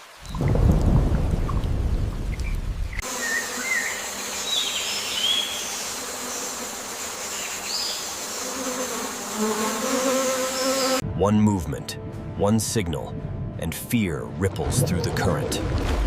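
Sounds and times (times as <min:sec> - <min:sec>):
jungle background hiss: 0:02.4 - 0:11.0.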